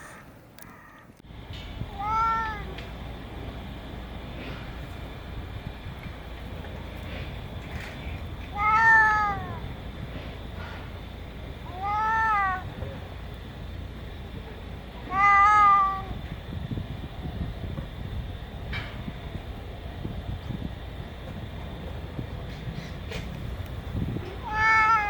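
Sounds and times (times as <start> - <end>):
cat meowing: 0.0 - 1.1, 1.9 - 2.8, 8.5 - 9.6, 11.6 - 12.8, 15.0 - 16.2, 24.2 - 25.0
low background rumble: 0.0 - 25.0.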